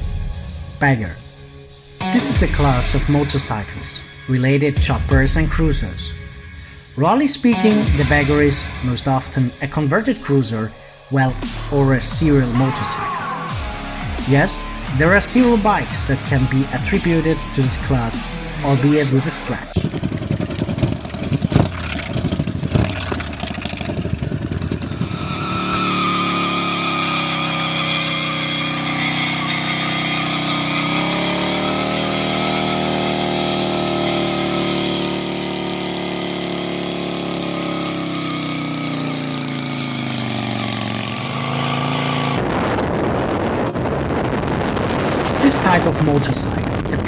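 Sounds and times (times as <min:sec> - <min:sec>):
motorcycle engine running: 0:13.5 - 0:47.0.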